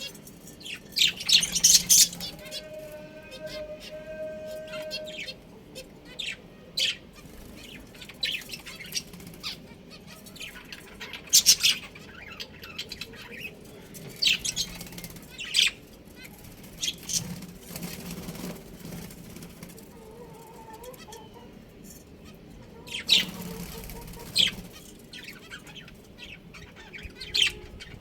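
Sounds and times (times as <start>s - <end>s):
budgerigars chirping: 0.0s - 4.0s, 6.1s - 17.4s, 22.2s - 28.0s.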